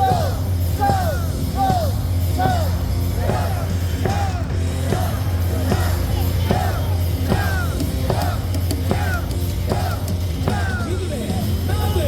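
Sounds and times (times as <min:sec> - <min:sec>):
cheer music over loudspeakers: 0:00.0 - 0:12.0
crowd cheering: 0:00.0 - 0:12.0.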